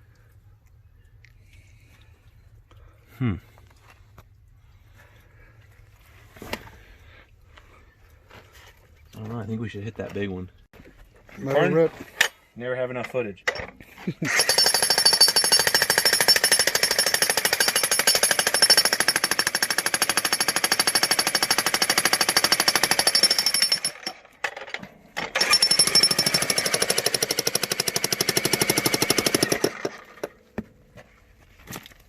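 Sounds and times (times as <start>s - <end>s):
jackhammer pounding rock: 14.3s - 24.6s, 25.2s - 30.4s.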